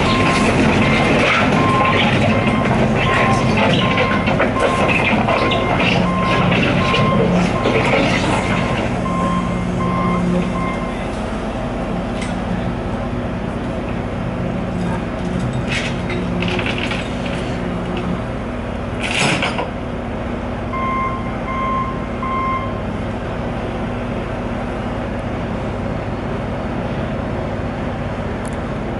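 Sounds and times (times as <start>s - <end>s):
heavy machinery engine drone: 0.0s - 28.9s
backup alarm beeping: 1.5s - 11.0s, 20.7s - 22.8s.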